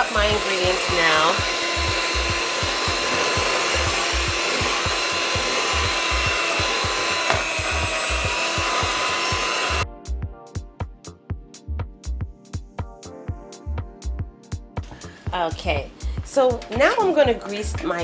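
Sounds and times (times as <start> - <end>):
electric hand mixer running: 0.0 - 9.8
music beat: 0.0 - 18.0.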